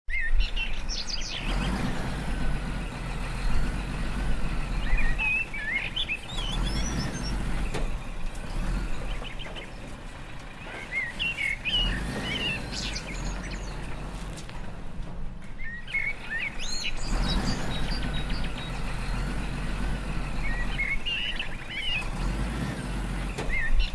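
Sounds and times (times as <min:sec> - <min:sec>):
birds chirping: 0:00.1 - 0:23.9
low engine-like hum: 0:00.1 - 0:23.9.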